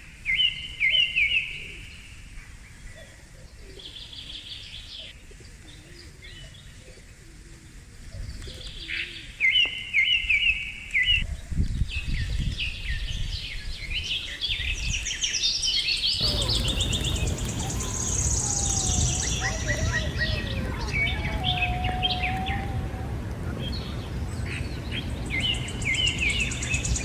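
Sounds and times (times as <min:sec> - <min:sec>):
low rumble: 0:16.2 - 0:24.3
birds chirping: 0:16.2 - 0:25.6.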